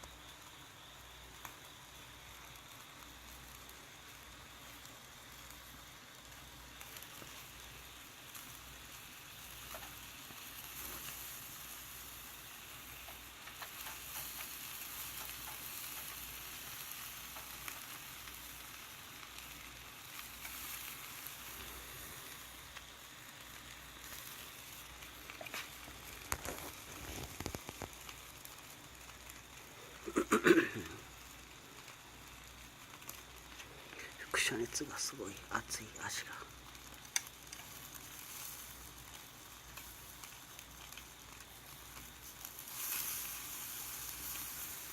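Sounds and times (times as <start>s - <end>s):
meat sizzling on a grill: 0.0s - 44.9s
faint ticks: 36.6s - 43.0s.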